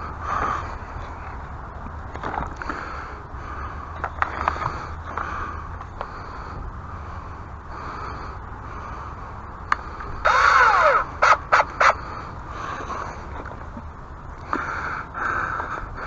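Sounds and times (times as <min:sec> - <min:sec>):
crow cawing: 0:10.2 - 0:12.1.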